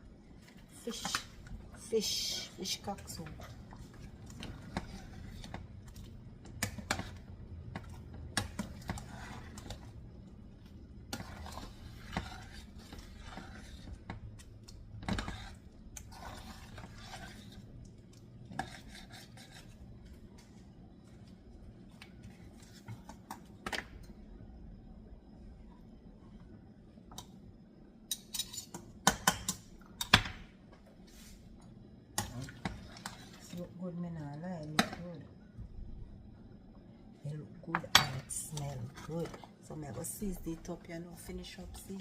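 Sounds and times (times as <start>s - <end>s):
utensil clinking and scraping pot: 2.0s - 9.9s, 11.1s - 17.8s, 18.4s - 19.8s, 28.1s - 29.6s, 37.7s - 42.0s.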